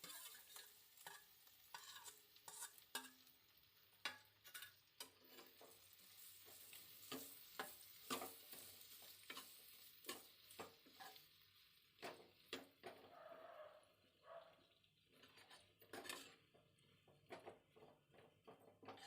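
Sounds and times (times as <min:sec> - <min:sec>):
light sizzle: 0:00.0 - 0:19.0
utensil stirring in a pan: 0:00.0 - 0:19.0.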